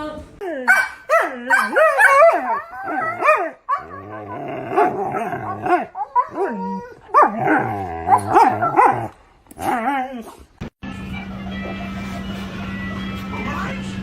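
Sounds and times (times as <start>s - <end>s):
dog whining and barking: 0.7s - 10.5s.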